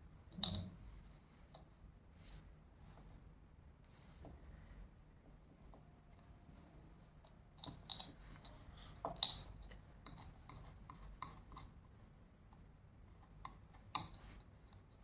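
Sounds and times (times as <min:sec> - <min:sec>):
clicks taps and rubbing: 0:08.4 - 0:15.0.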